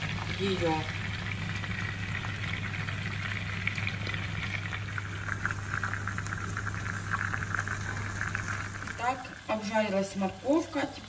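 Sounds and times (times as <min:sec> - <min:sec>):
food sizzling in frying pan: 0:00.0 - 0:11.0.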